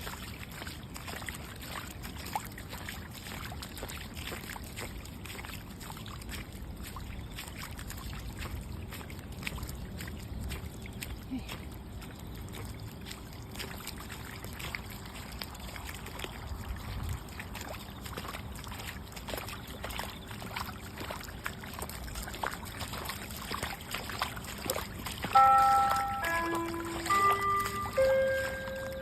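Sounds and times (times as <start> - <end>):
water trickling and splashing: 0.0 - 29.0
bright music notes: 25.4 - 29.0.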